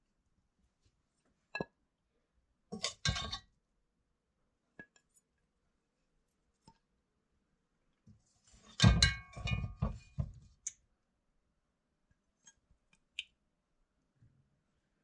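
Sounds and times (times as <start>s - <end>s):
dishes and utensil clinking: 2.8s - 3.4s, 8.8s - 10.3s.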